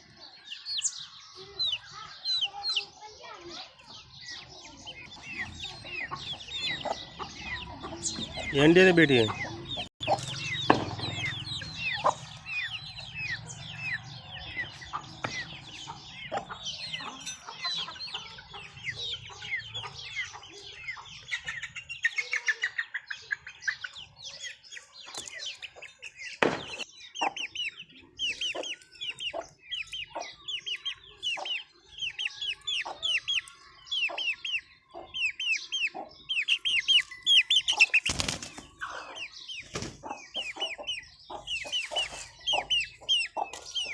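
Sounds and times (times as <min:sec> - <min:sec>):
chickens clucking: 0:00.0 - 0:43.9
sharp knocks: 0:10.6 - 0:11.3, 0:26.4 - 0:26.8.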